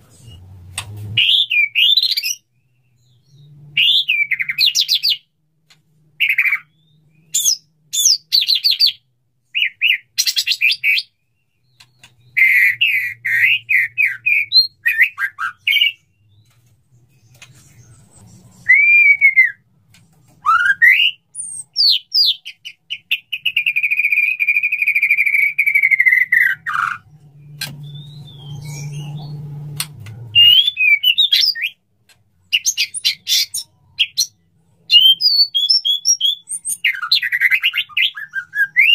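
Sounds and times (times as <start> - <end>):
bird singing whistled phrases: 17.7 - 19.6, 20.4 - 29.4, 30.3 - 31.8, 32.5 - 38.9
long falling bird whistle: 18.6 - 19.6.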